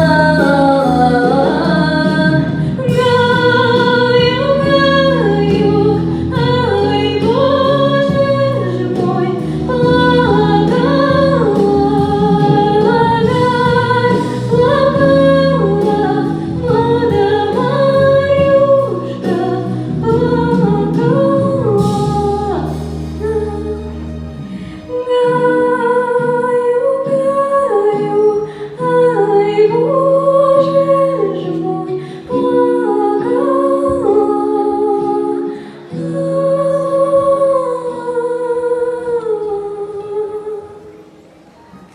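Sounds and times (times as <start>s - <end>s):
female vocal ensemble singing: 0.0s - 24.0s, 24.6s - 41.0s.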